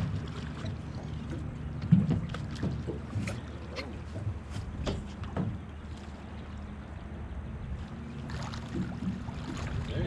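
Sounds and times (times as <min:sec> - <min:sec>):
water rumbling: 0:00.0 - 0:10.0
wind on microphone: 0:08.8 - 0:10.0.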